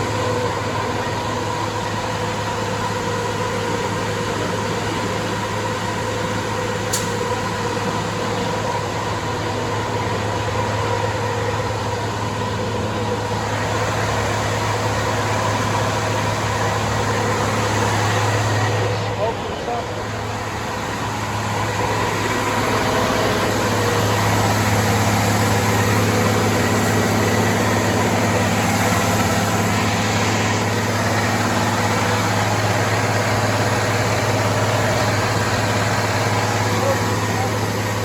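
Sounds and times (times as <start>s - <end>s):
diesel engine droning: 0.0s - 38.0s
brief click: 6.9s - 7.1s.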